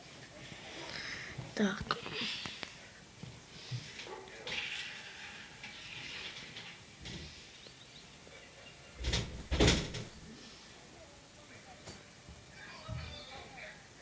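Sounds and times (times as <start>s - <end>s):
faint outdoor background: 0.0s - 14.0s
loud thumps: 9.0s - 10.2s.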